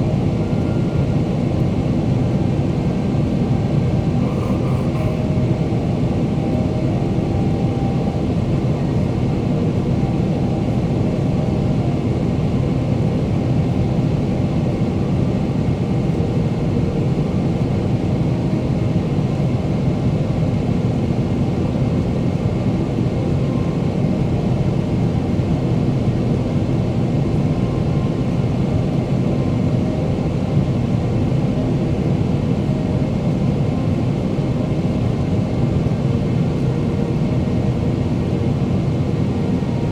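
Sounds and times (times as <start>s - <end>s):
jet engine hum: 0.0s - 19.1s
airplane cabin noise: 0.0s - 39.9s.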